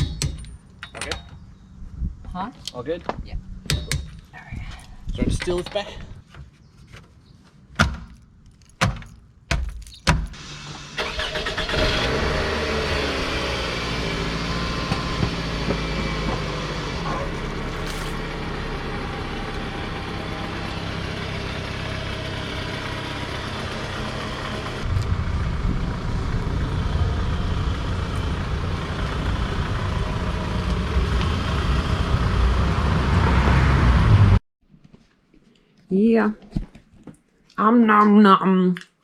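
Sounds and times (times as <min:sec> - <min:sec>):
car engine running: 0:10.4 - 0:34.4.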